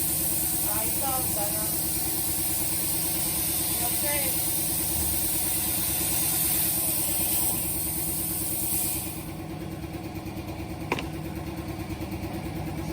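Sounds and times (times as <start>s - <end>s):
plasma cutter hissing: 0.0s - 9.4s.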